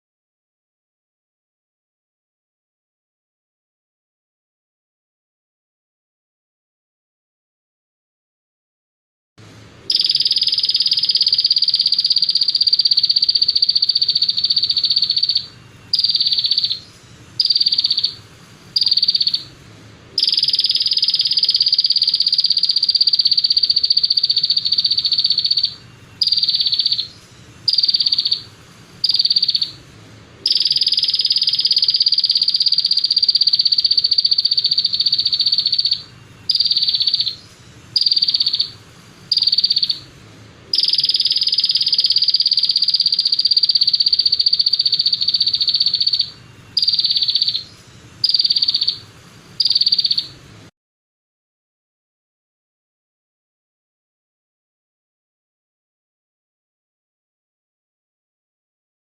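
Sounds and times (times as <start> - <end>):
songbird buzzing trill: 9.9 - 16.8, 17.4 - 18.2, 20.2 - 27.1, 27.7 - 29.8, 30.5 - 37.4.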